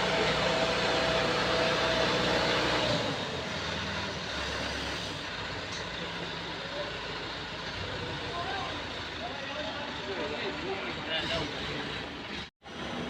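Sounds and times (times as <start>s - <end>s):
heavy machinery humming: 0.0s - 13.0s.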